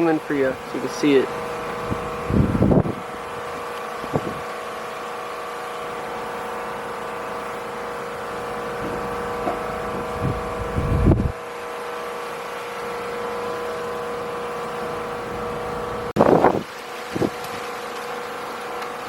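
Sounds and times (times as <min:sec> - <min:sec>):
mechanical drone hum: 0:00.0 - 0:19.0
wind gusting on microphone: 0:01.8 - 0:04.5, 0:08.8 - 0:11.4, 0:16.2 - 0:17.4.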